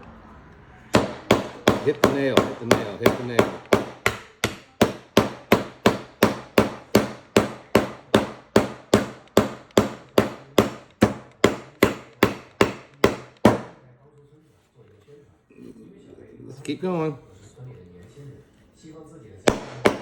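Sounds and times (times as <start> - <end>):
hammer nailing into wood: 0.9 - 13.8, 19.5 - 20.0.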